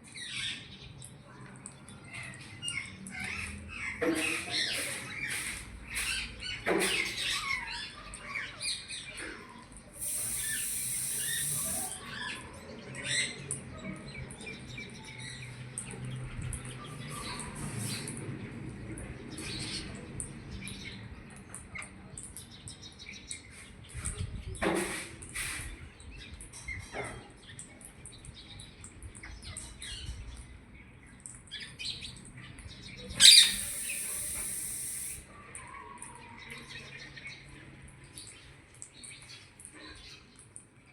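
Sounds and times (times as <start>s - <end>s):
loud high hiss: 10.0s - 12.0s, 33.2s - 35.2s
parrot chirping and squeaking: 10.0s - 12.0s, 33.2s - 35.2s.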